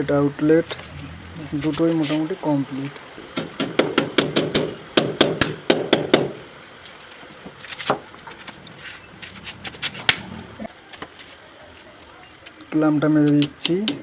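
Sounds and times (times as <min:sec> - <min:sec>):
hammer striking rapidly: 0:03.4 - 0:06.4.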